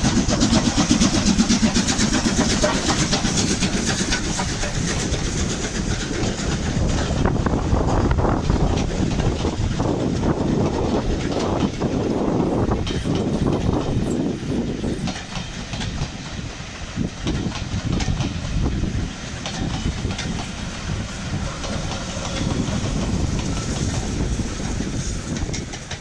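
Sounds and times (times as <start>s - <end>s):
train coaches rumbling past: 0.0s - 26.0s
wheels clicking over rail joints: 0.0s - 26.0s.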